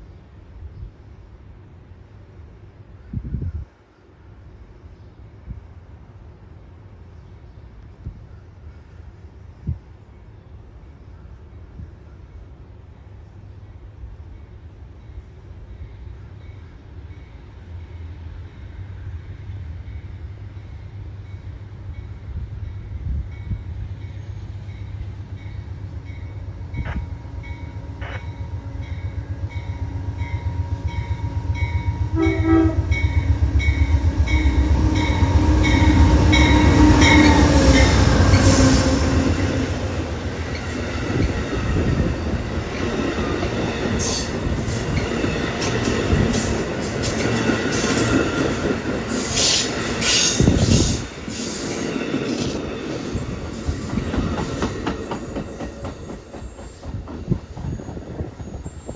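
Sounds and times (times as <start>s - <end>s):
train rumble and wheels on rails: 0.0s - 58.9s
train horn: 26.1s - 40.1s.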